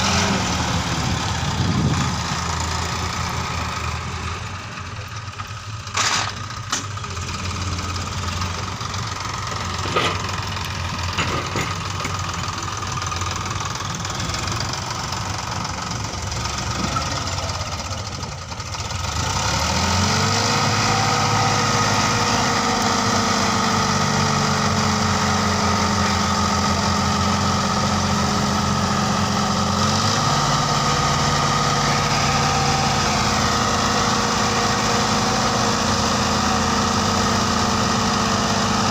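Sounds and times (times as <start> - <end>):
diesel tractor engine: 0.0 - 38.9.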